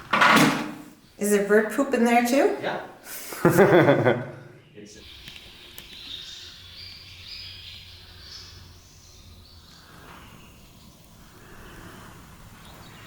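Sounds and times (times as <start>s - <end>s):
swallows twittering: 4.5s - 13.0s.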